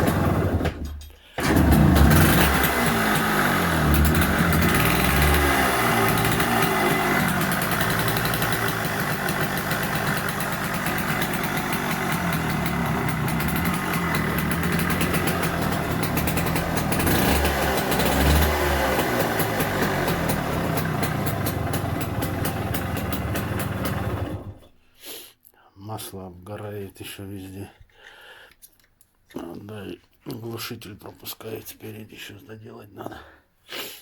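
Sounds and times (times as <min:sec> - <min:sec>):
two-stroke engine revving: 0:00.0 - 0:24.6.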